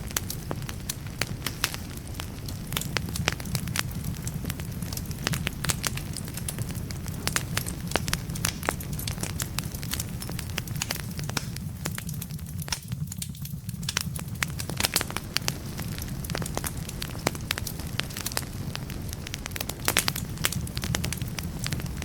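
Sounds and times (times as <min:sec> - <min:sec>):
burning logs crackling and popping: 0:00.0 - 0:22.0
fire rumbling: 0:00.0 - 0:22.0.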